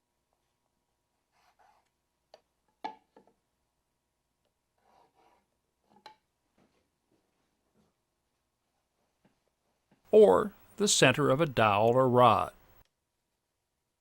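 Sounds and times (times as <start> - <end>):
pencil scratching lines: 1.2 - 2.0, 4.7 - 5.7.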